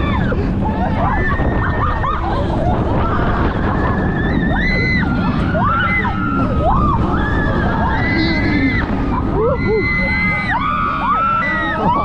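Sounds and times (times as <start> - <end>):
roller coaster rumble: 0.0 - 12.0
wind buffeting microphone: 0.0 - 12.0
riders screaming: 3.0 - 12.0.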